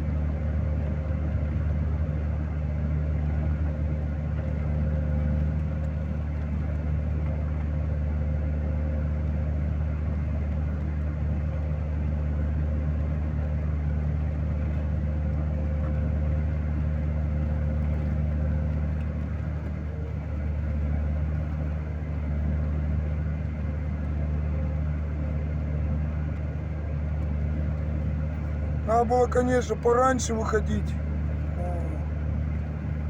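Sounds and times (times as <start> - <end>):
vehicle engine humming: 16.2 - 33.0.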